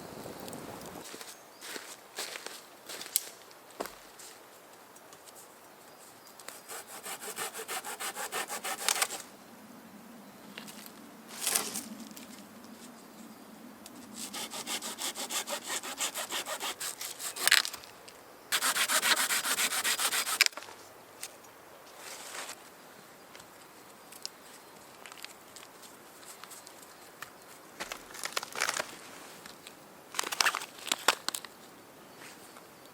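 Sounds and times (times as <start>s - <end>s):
hand saw cutting wood: 6.6s - 9.2s, 14.2s - 17.7s, 18.5s - 20.5s.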